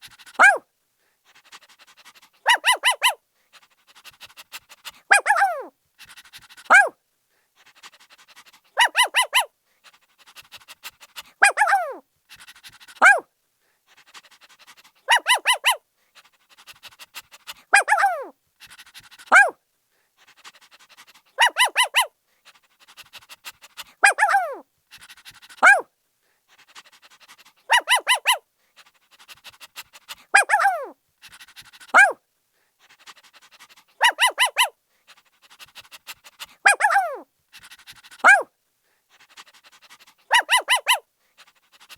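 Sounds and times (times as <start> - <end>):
puppy barking and yipping: 0.3 - 0.6, 2.4 - 3.2, 5.0 - 5.7, 6.7 - 6.9, 8.8 - 9.5, 11.4 - 12.0, 13.0 - 13.2, 15.0 - 15.8, 17.5 - 18.3, 19.2 - 19.6, 21.4 - 22.1, 24.0 - 24.6, 25.6 - 25.8, 27.7 - 28.4, 30.1 - 31.0, 31.9 - 32.2, 34.0 - 34.7, 36.4 - 37.2, 38.2 - 38.5, 40.3 - 41.1.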